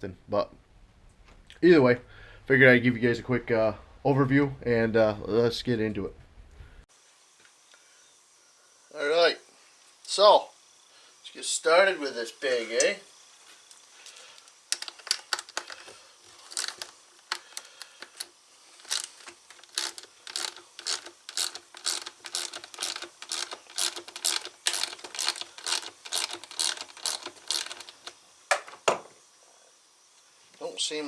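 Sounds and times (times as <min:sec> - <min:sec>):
ratchet clicking: 0:14.4 - 0:28.2.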